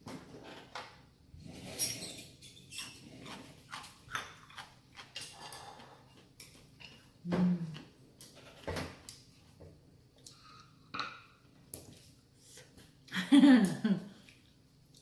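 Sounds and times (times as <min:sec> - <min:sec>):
person chewing and slurping noodles: 0:02.8 - 0:07.2.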